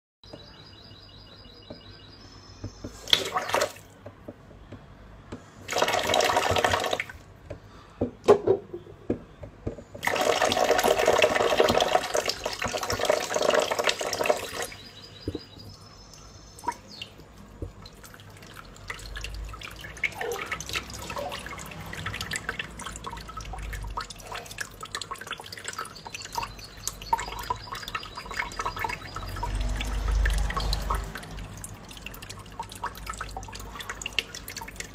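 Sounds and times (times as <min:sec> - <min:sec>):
bird splashing in water: 0:03.0 - 0:04.0.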